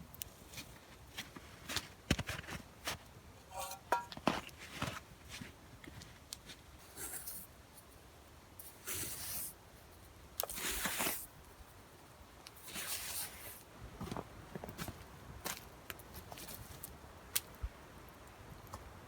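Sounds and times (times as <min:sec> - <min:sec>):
rustling scraping sounds: 0:01.2 - 0:07.9, 0:10.5 - 0:11.3, 0:12.6 - 0:15.0.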